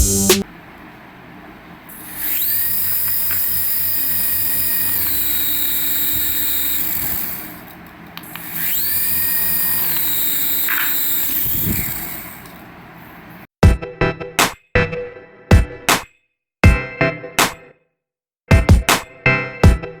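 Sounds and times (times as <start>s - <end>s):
toy electric motor whining: 1.9s - 12.8s.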